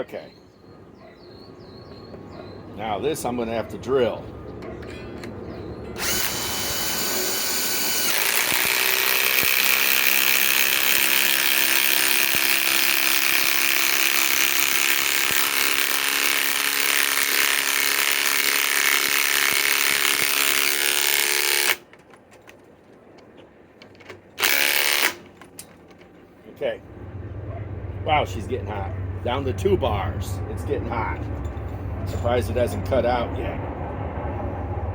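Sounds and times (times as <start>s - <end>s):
power drill boring into wood: 6.0s - 21.8s, 24.4s - 25.2s.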